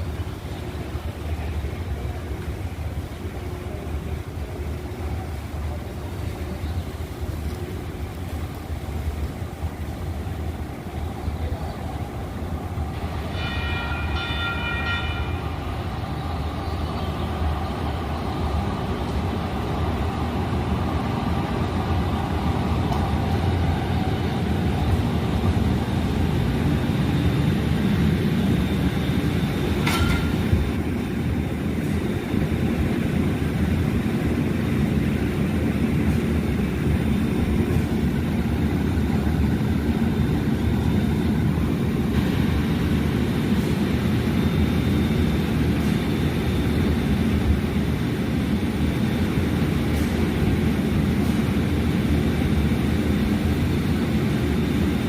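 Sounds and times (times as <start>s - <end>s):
train rumbling: 0.0s - 55.0s
train horn toot: 13.3s - 15.6s.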